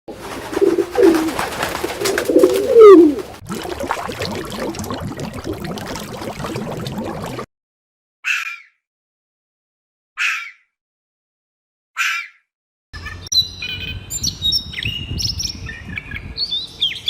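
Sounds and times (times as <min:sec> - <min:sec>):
bird cooing: 0:00.4 - 0:03.4.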